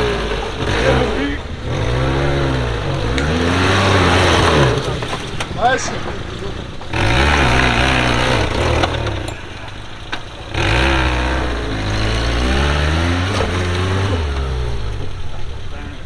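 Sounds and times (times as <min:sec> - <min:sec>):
engine revving hard: 0:00.0 - 0:16.0
loud rushing noise: 0:03.5 - 0:09.3.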